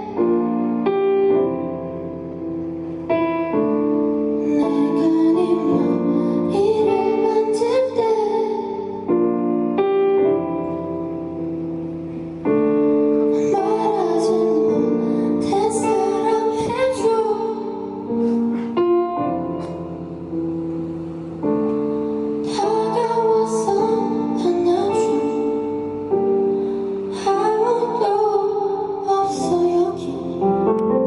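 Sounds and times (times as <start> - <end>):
woman singing slow song: 4.4 - 9.1, 13.3 - 18.5, 22.4 - 26.5, 27.1 - 30.8.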